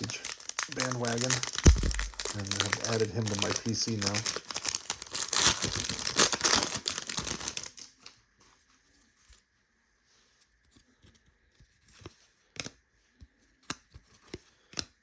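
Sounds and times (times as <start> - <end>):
foil wrapper tearing and crinkling: 0.0 - 7.9.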